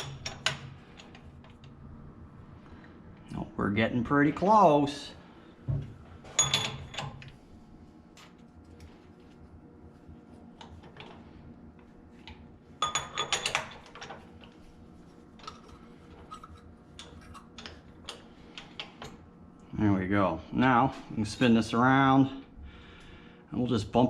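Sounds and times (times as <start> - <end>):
metal clinks and clanks: 6.3 - 7.2.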